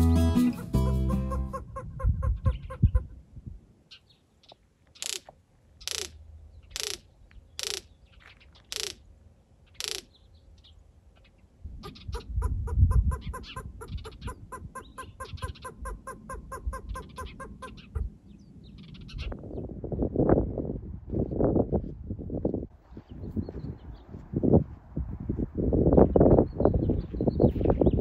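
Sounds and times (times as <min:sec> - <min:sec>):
low wind rumble: 0:01.4 - 0:03.9, 0:09.0 - 0:28.0
bird harsh calls and chatter: 0:03.9 - 0:12.4, 0:13.0 - 0:19.4.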